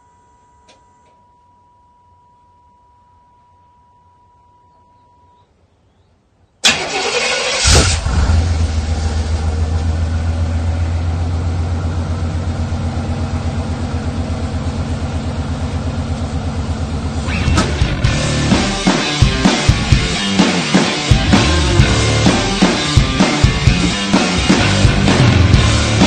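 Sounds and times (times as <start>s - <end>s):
engine starter cranking: 6.6s - 8.6s
engine idling: 6.6s - 26.0s.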